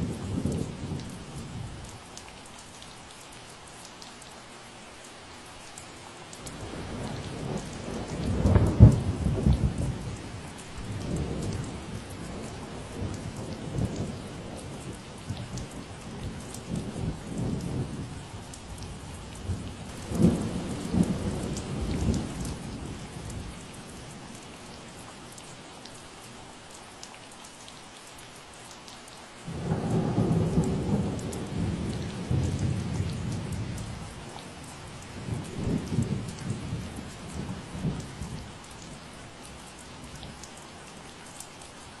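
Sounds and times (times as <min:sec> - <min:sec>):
steady rain: 0:00.0 - 0:42.0
raindrops ticking: 0:05.0 - 0:42.0
thunder rumbling: 0:18.8 - 0:23.6, 0:29.5 - 0:38.5.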